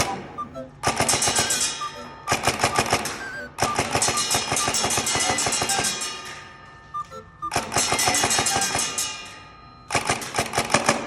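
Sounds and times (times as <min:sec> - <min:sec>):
airsoft gun rapid firing: 0:09.9 - 0:11.0.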